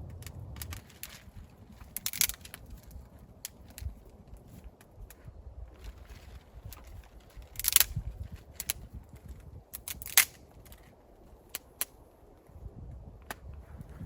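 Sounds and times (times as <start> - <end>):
low rumble: 0.0 - 7.4
sharp snaps and cracks: 0.0 - 12.5.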